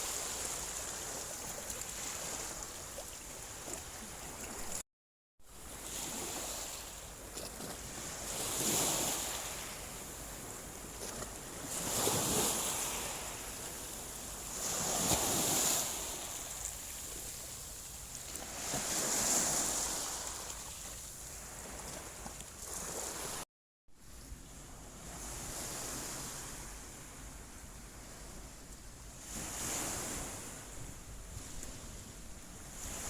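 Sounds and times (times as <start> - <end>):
small waves washing on beach: 0.0 - 4.8, 5.5 - 23.4.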